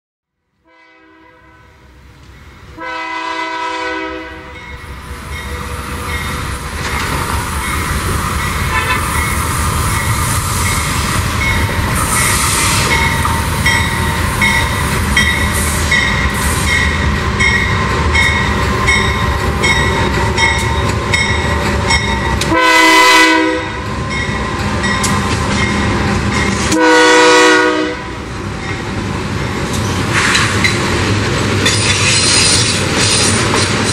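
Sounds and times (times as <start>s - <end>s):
train engine rumbling: 0.5s - 33.9s
locomotive horn blasts: 0.6s - 1.8s, 2.7s - 4.7s, 8.7s - 9.2s, 22.3s - 23.9s, 26.7s - 28.2s.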